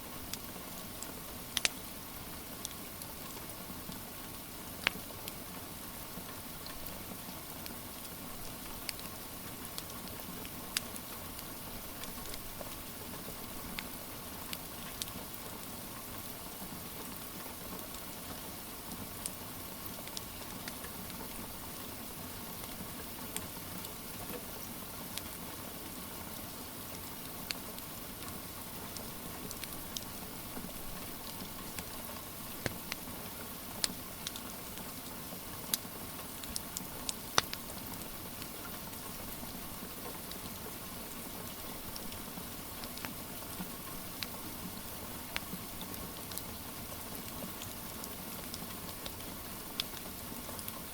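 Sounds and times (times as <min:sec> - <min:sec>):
steady rain hiss: 0:00.0 - 0:50.9
wood fire popping and snapping: 0:01.5 - 0:01.8, 0:29.0 - 0:33.1, 0:33.8 - 0:34.9, 0:35.7 - 0:38.7, 0:47.6 - 0:50.0.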